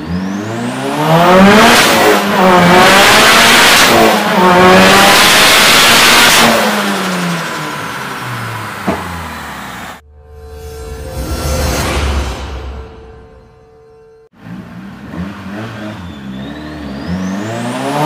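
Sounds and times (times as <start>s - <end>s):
car engine revving hard: 0.0s - 10.0s, 14.4s - 18.0s.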